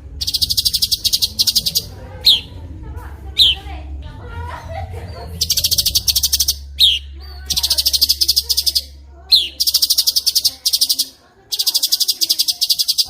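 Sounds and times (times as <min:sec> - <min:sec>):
songbird trilling: 0:00.1 - 0:02.5, 0:03.4 - 0:03.6, 0:05.4 - 0:13.0.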